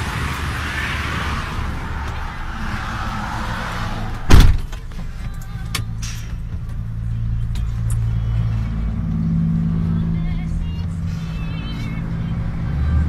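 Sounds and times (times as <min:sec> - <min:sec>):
car engine hum inside cabin: 0:00.0 - 0:13.0
loud thump: 0:04.2 - 0:04.8.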